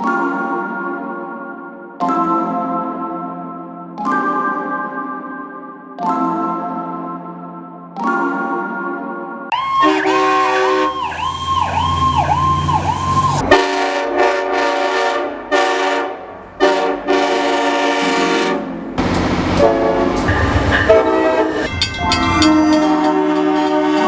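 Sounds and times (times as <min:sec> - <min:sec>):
fire engine siren wailing: 0:09.5 - 0:24.0
air horn blasts: 0:09.8 - 0:11.0, 0:13.5 - 0:21.7, 0:22.3 - 0:24.0.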